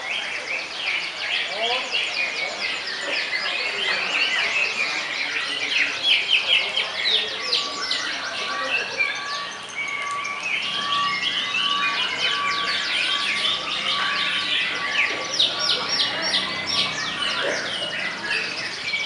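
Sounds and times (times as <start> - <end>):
canary singing: 5.4 - 19.0.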